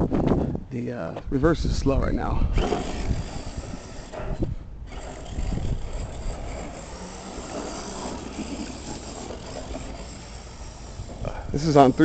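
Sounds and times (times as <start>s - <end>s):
toy truck electric motor whirring: 2.5s - 12.0s.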